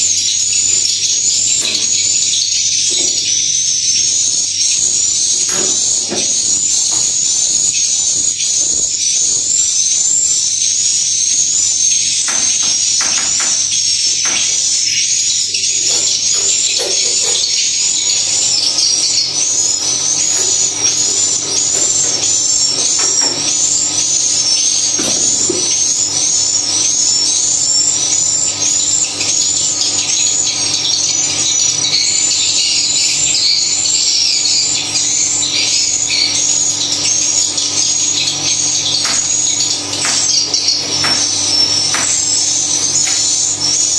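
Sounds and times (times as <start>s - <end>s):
swiftlets chirping: 9.4s - 27.8s.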